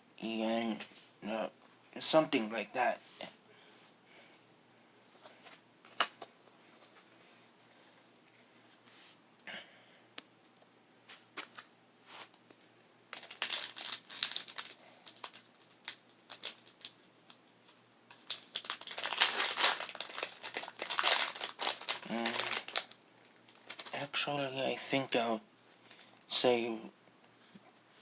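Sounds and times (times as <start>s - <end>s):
plastic wrappers crinkling: 13.1s - 24.2s.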